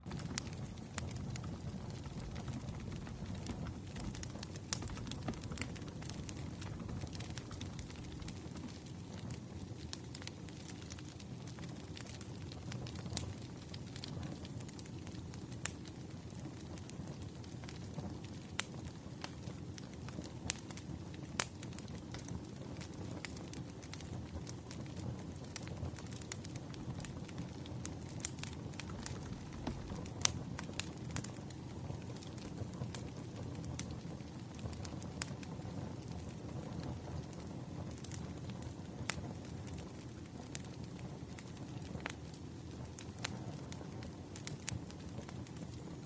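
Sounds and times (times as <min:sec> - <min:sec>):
campfire crackling and popping: 0:00.0 - 0:46.0.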